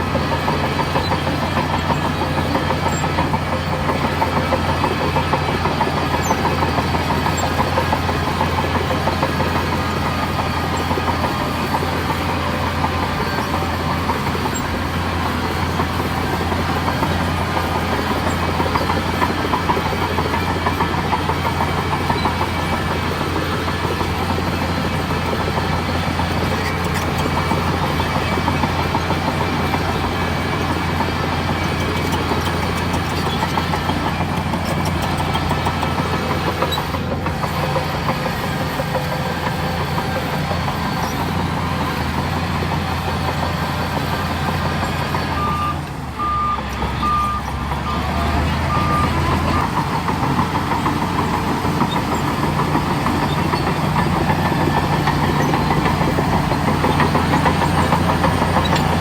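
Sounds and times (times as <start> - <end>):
bulldozer diesel engine drone: 0.0 - 59.0
high reversing beeps: 45.3 - 49.8.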